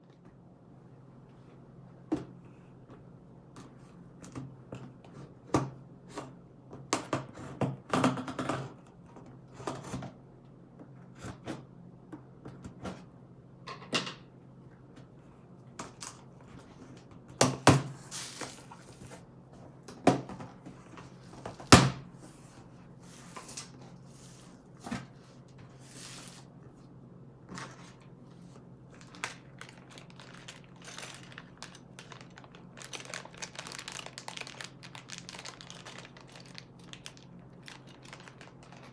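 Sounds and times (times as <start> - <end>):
packaging rustling: 17.9 - 19.2, 25.8 - 26.5, 29.0 - 38.9.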